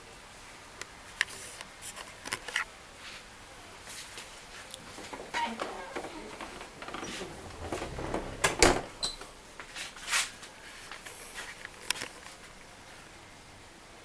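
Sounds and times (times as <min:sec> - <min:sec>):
door knocks and clicks: 0:05.6 - 0:09.2.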